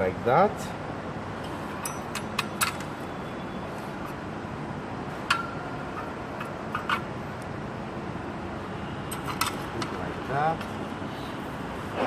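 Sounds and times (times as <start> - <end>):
metallic clink with ring: 1.4 - 2.8.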